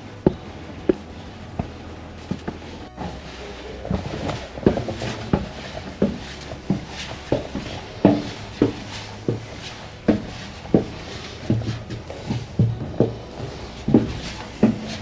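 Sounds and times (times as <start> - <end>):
footsteps walking: 0.0 - 15.0.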